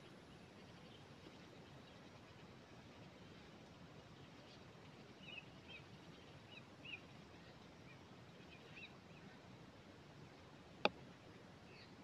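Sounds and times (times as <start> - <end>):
low steady hiss: 0.0 - 12.0
bird chirping: 5.2 - 7.0, 11.7 - 12.0.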